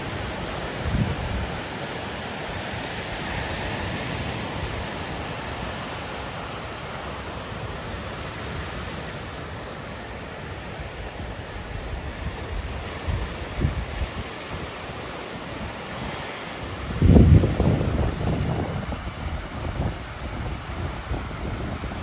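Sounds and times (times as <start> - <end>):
wind rumble on microphone: 0.0 - 1.7, 11.1 - 22.0
breaking waves: 0.0 - 22.0.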